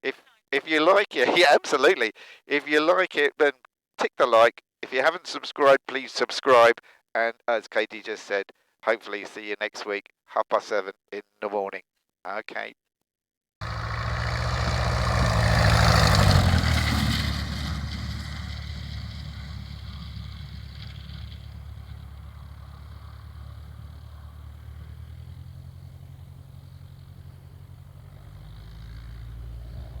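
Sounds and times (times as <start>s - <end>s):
light aircraft engine and propeller: 13.6s - 30.0s.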